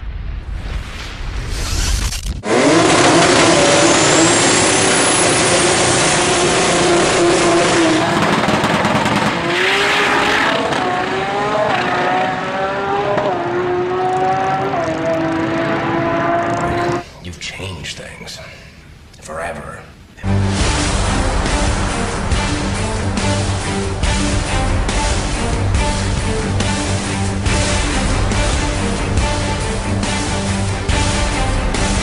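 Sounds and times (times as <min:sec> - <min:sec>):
race car engine at high revs: 0:02.4 - 0:17.0
dense rush of noise: 0:20.0 - 0:30.0.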